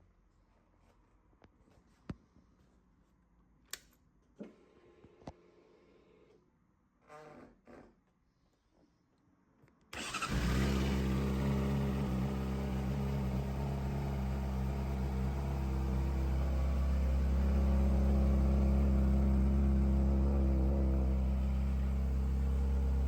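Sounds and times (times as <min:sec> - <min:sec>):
motorcycle engine starting and idling: 0:10.0 - 0:23.0.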